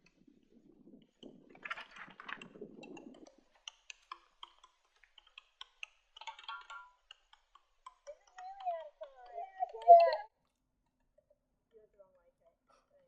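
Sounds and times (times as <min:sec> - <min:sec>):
light clicks and taps: 0:01.1 - 0:10.1.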